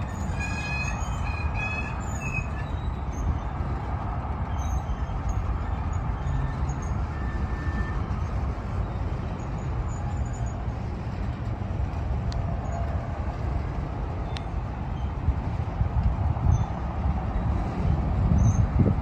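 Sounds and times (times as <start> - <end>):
diesel locomotive rumble: 0.0 - 19.0.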